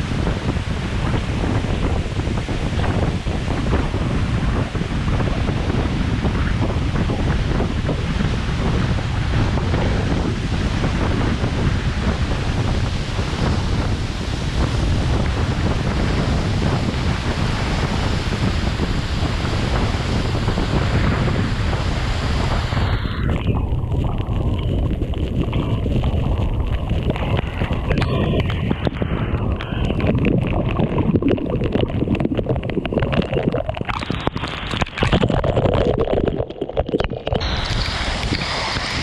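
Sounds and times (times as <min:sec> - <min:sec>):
falling water rushing: 0:08.2 - 0:39.0.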